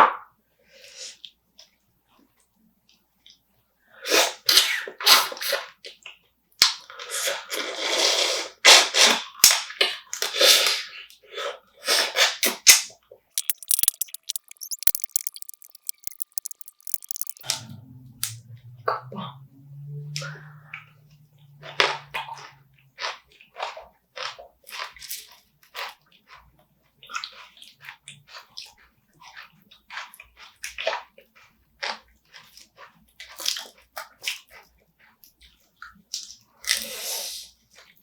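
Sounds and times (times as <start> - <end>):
fine crackling clicks: 13.4 - 17.5
person slurping and sucking food: 13.4 - 17.5
low steady hum: 13.4 - 22.4.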